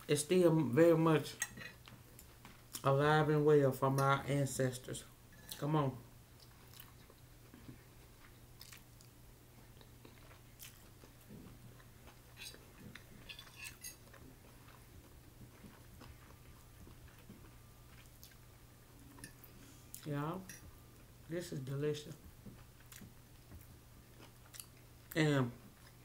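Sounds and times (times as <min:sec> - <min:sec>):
person chewing noodles: 0:06.3 - 0:18.5, 0:22.4 - 0:26.0.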